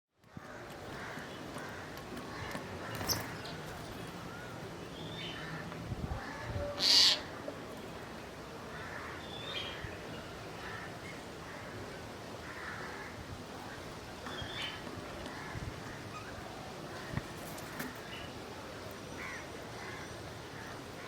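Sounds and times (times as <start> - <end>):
crows cawing: 0.3 - 3.2, 5.4 - 7.4, 8.7 - 9.9, 10.6 - 11.8, 12.4 - 13.3, 15.2 - 16.2, 19.2 - 21.0
loud harsh bird call: 6.2 - 7.4
small birds chirping: 13.6 - 18.5.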